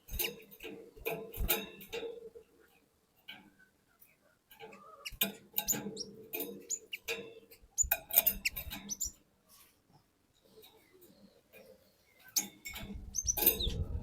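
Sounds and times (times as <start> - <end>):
bird calling and chattering: 3.5 - 9.2, 10.5 - 14.0.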